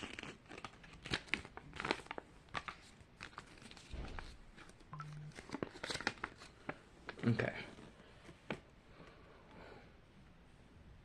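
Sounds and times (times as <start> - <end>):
paper crinkling and crackling: 0.0 - 8.7.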